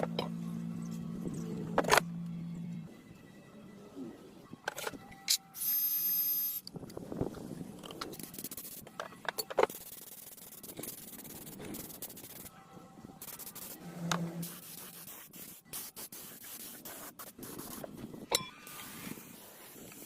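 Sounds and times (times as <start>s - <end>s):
rubbing and scraping on metal: 13.2s - 15.6s.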